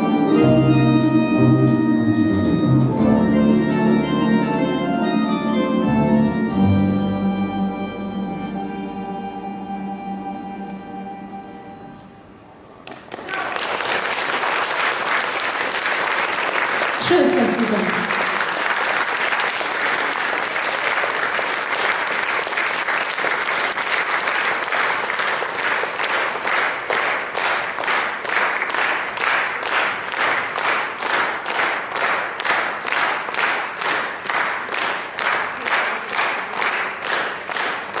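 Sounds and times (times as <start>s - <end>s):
audience applauding: 12.8s - 38.0s
rhythmic clapping in unison: 12.8s - 38.0s.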